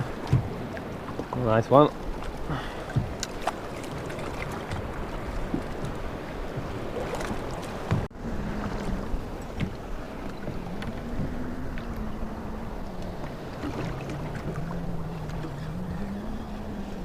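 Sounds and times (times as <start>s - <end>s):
water sloshing against boat hull: 0.0s - 17.0s.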